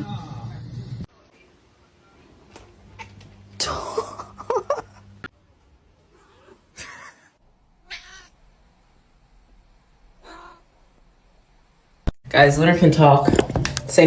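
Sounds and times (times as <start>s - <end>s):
cat meowing: 7.8s - 8.4s, 10.2s - 10.7s.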